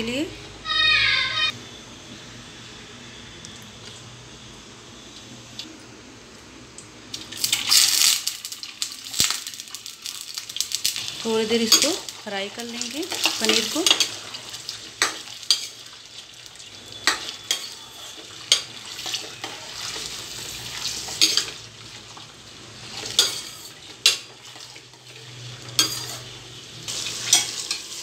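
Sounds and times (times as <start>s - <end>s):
cheese sizzling in hot oil: 7.0s - 28.0s
metal spatula scraping pan: 17.0s - 20.2s, 22.9s - 26.4s.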